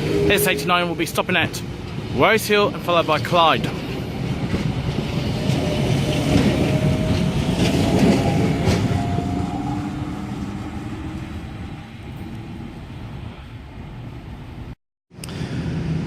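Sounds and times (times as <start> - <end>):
electric train pulling out: 0.0 - 14.3
wheels clicking over rail joints: 3.2 - 9.4.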